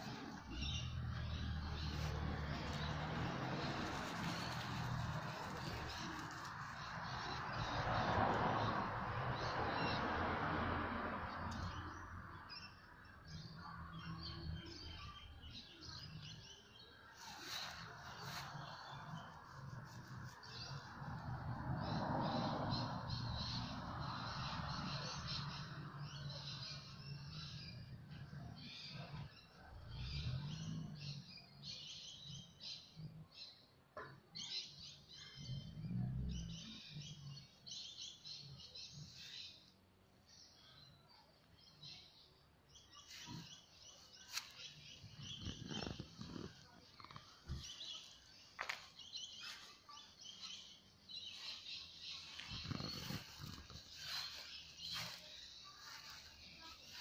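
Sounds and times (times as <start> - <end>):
rustling: 0.0 - 7.4
small birds chirping: 0.0 - 10.0, 11.3 - 57.0
birds chirping: 34.4 - 57.0.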